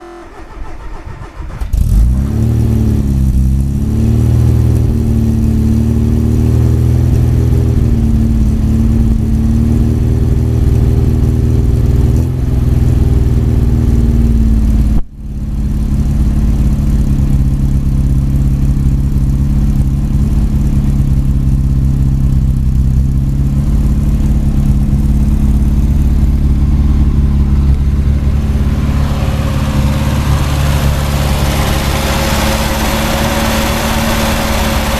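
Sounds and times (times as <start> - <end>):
engine cranking and starting: 0.0 - 2.6
car engine idling: 0.0 - 34.9.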